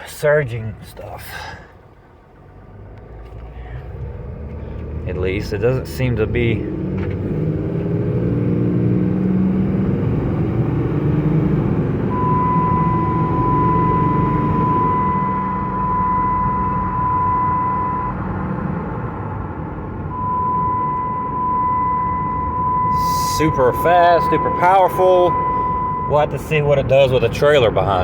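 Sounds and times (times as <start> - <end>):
diesel engine running: 0.0 - 28.0
steady high-pitched tone: 12.1 - 18.7, 20.1 - 27.7.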